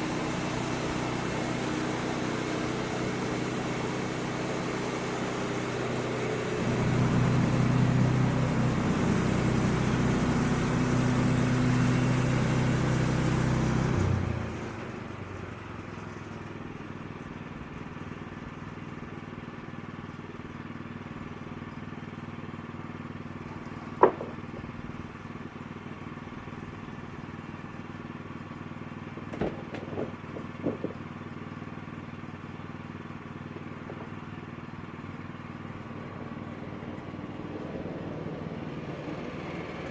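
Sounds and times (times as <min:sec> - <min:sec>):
sawmill cutting log: 0:00.0 - 0:17.2, 0:23.4 - 0:25.4, 0:33.5 - 0:39.9
sharp knocks: 0:23.8 - 0:24.7.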